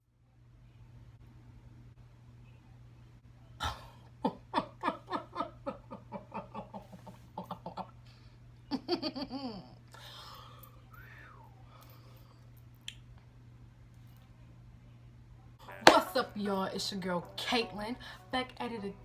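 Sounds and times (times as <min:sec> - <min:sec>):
steady low hum: 0:00.0 - 0:19.0
woman laughing: 0:03.6 - 0:07.9, 0:08.7 - 0:09.8.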